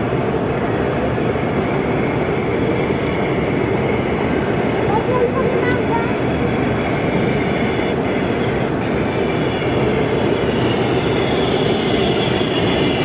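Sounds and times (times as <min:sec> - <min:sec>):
model train rolling on track: 0:00.0 - 0:13.0.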